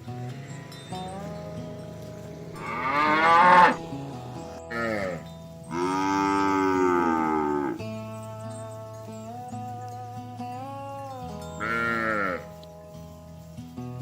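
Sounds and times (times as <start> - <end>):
background music: 0.0 - 14.0
cattle mooing: 0.3 - 7.9, 11.6 - 12.6.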